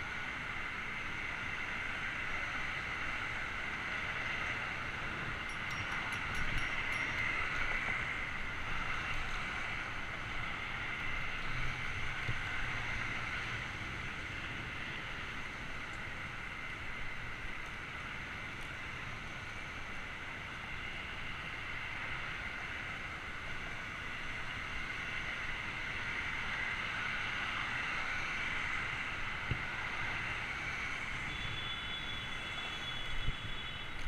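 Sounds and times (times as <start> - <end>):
faint high whine: 14.1 - 34.0.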